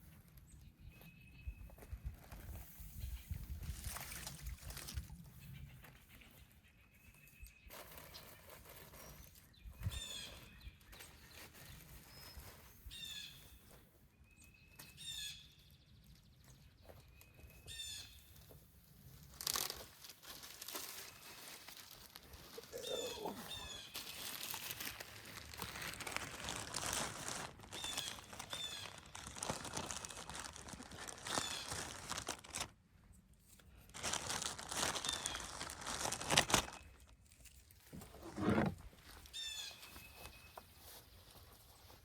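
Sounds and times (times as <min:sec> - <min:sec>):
crinkling and rustling: 0:18.4 - 0:32.8, 0:33.6 - 0:42.0.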